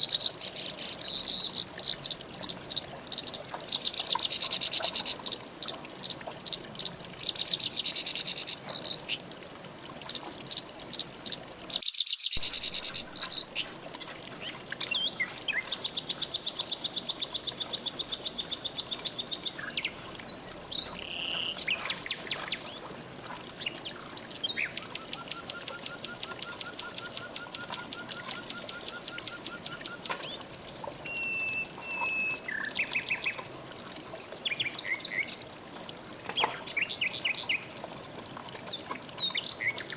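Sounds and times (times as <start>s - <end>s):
birds chirping and trilling: 0.2s - 22.9s.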